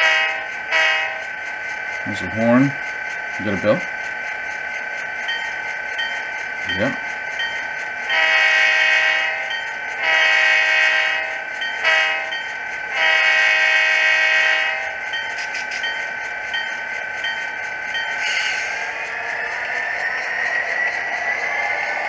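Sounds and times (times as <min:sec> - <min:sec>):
model locomotive horn blasts: 0:00.0 - 0:01.2, 0:08.1 - 0:15.0
steady tone: 0:00.0 - 0:13.0.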